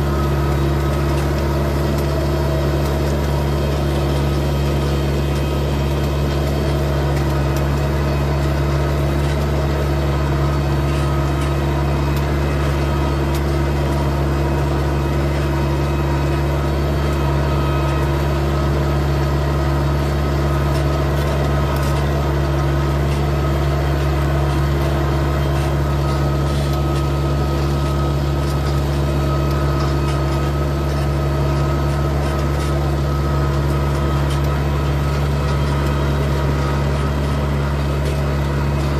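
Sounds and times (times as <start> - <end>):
tractor engine humming: 0.0 - 38.9.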